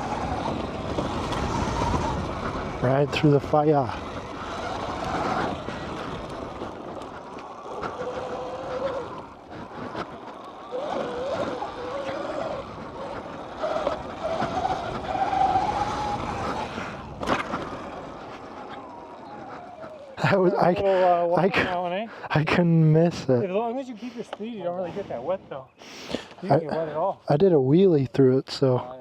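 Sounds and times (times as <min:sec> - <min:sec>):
rushing wind: 0:00.0 - 0:20.4
tyre noise: 0:00.0 - 0:21.9
dirt bike engine: 0:00.0 - 0:25.4.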